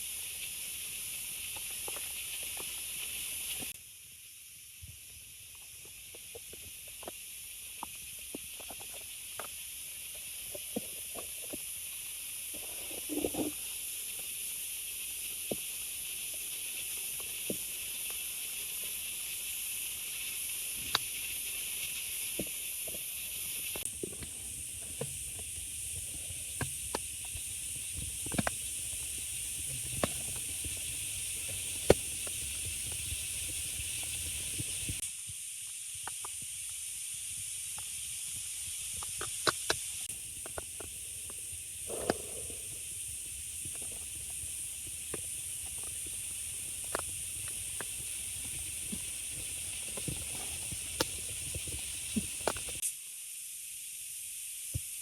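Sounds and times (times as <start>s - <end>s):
rain hissing: 0.0s - 3.8s, 9.3s - 35.0s, 37.1s - 52.8s
sharp drips and ticks: 0.0s - 3.8s, 13.5s - 35.0s, 38.8s - 52.8s.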